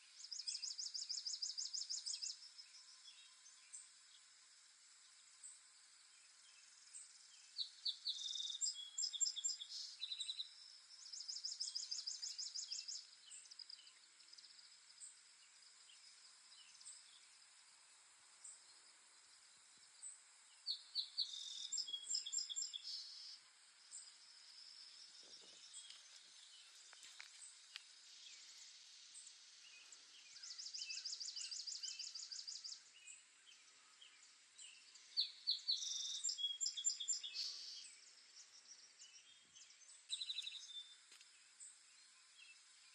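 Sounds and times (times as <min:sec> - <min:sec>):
insects hissing: 0:00.1 - 0:42.9
songbird trilling: 0:20.7 - 0:23.3.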